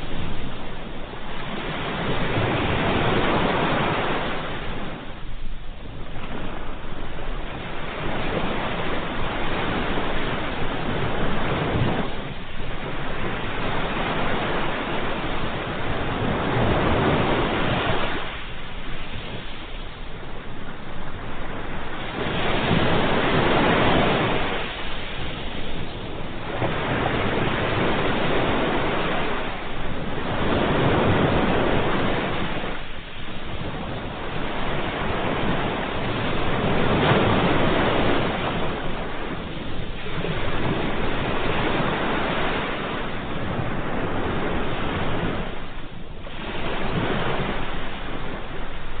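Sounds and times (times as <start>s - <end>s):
ocean waves breaking: 0.0s - 49.0s.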